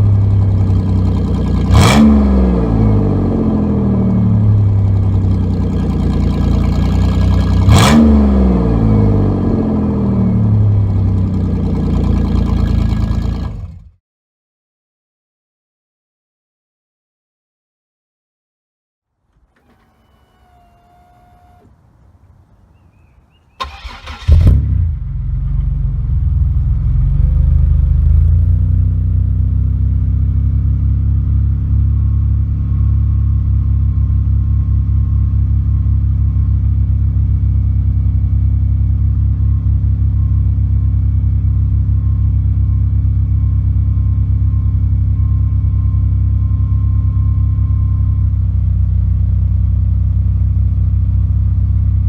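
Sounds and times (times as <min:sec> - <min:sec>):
car engine idling: 0:00.0 - 0:07.8, 0:08.4 - 0:13.9, 0:19.2 - 0:52.0
car engine cranking and starting: 0:00.0 - 0:14.0, 0:19.2 - 0:29.4.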